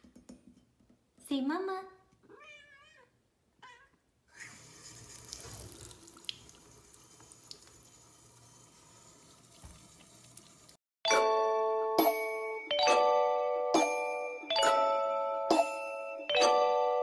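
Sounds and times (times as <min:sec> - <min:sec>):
tap water running into sink: 0:04.5 - 0:10.8
bell-like chime notes: 0:11.1 - 0:17.0.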